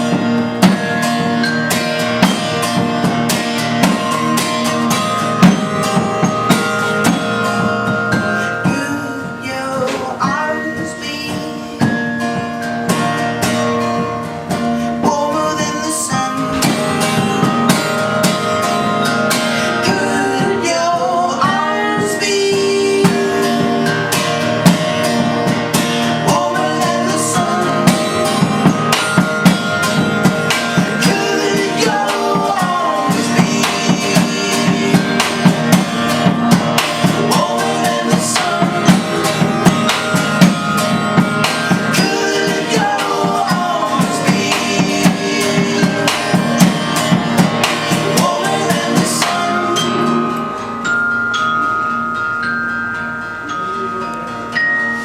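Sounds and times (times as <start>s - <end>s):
drum kit beat: 0.0s - 54.3s
guitar: 0.0s - 55.0s
person singing: 8.4s - 12.1s, 15.0s - 17.7s, 19.6s - 24.3s, 26.0s - 29.2s, 30.6s - 40.6s, 41.5s - 50.9s, 53.4s - 55.0s.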